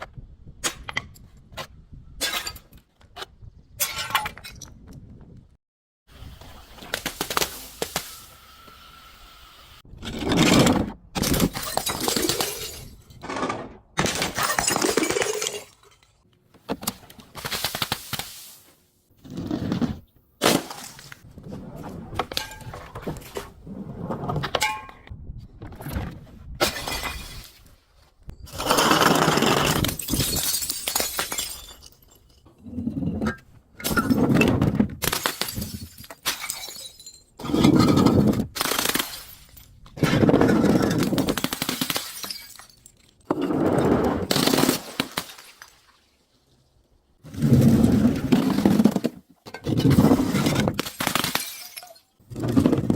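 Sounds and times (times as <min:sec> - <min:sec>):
glass bottles shattering and crunching: 0:11.2 - 0:16.2, 0:26.6 - 0:27.7, 0:28.6 - 0:32.5, 0:33.8 - 0:34.4, 0:35.0 - 0:43.4, 0:48.1 - 0:52.9.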